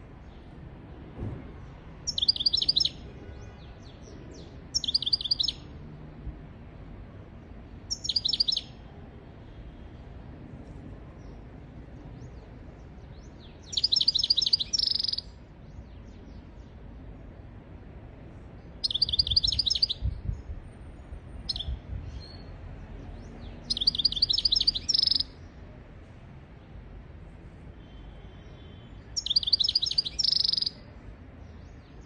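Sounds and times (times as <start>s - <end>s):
finch twittering trills: 2.1s - 3.0s, 4.8s - 5.6s, 7.9s - 8.7s, 13.4s - 15.3s, 18.8s - 20.1s, 21.4s - 22.5s, 23.3s - 25.3s, 28.6s - 30.8s.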